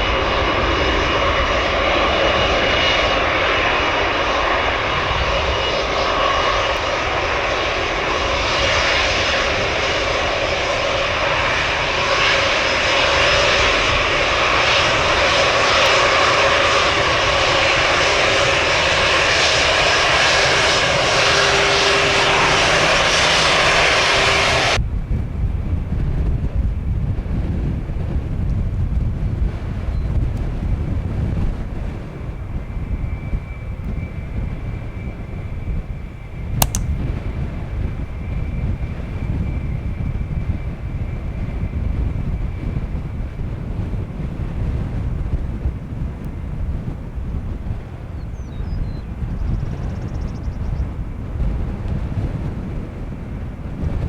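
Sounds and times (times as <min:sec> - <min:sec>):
jet engines roaring: 0:00.0 - 0:24.8
wind noise on microphone: 0:00.0 - 0:54.0.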